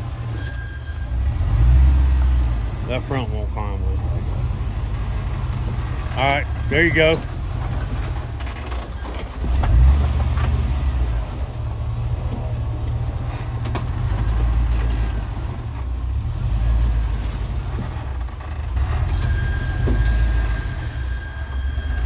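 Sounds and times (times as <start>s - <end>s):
truck engine rumbling at low revs: 0.0s - 22.0s
thin high squeal: 0.2s - 1.4s, 19.0s - 22.0s.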